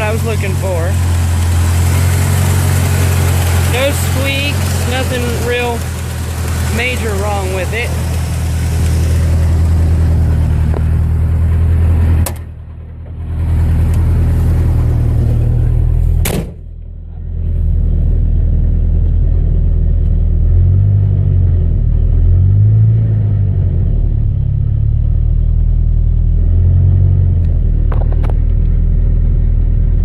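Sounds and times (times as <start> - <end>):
pickup engine idling: 0.0 - 20.5.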